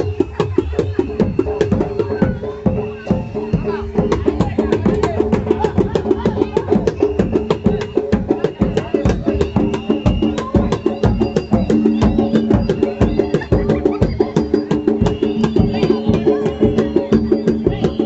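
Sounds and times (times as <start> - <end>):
high held tone: 6.4 - 18.0.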